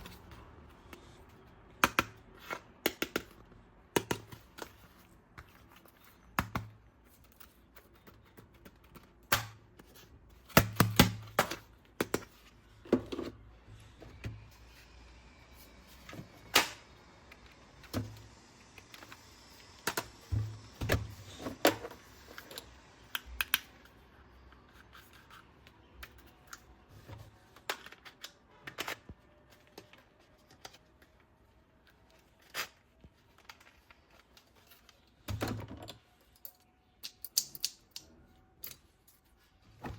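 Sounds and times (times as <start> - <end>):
plastic toy parts clicking: 35.8 - 38.9.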